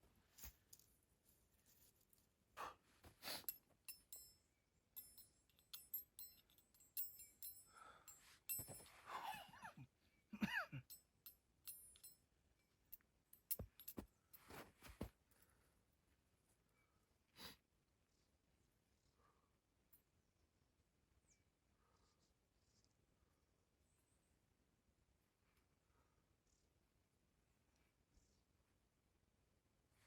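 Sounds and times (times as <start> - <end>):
light metallic clinks: 3.2 - 9.8, 10.4 - 15.1.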